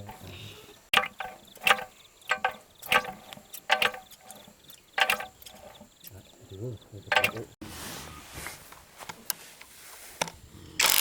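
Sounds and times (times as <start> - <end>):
metallic clinks and knocks: 0.9 - 5.9.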